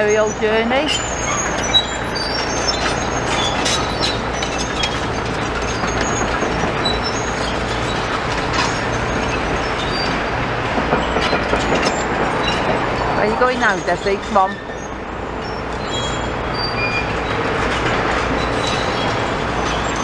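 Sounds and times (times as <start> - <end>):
diesel engine running: 0.0 - 20.0
steel tracks clanking: 0.0 - 20.0
short high squeaks: 0.1 - 10.2, 13.4 - 17.4.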